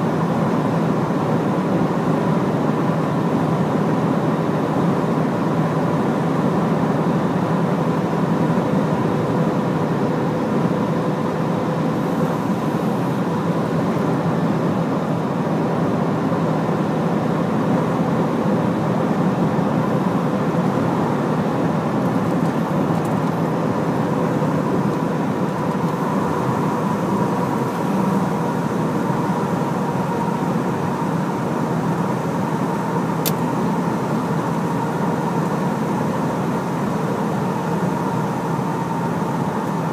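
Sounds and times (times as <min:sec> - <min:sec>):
truck diesel engine: 0:19.1 - 0:39.9
road noise: 0:20.6 - 0:37.2.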